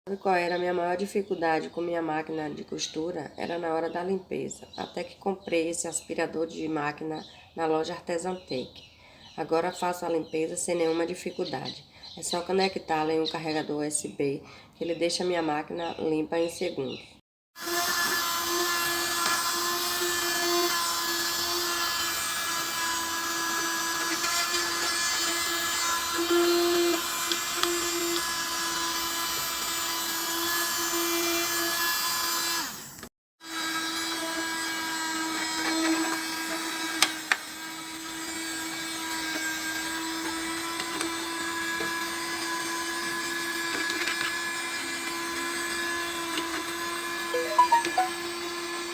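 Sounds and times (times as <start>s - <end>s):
small vacuum motor whining: 17.6s - 47.4s.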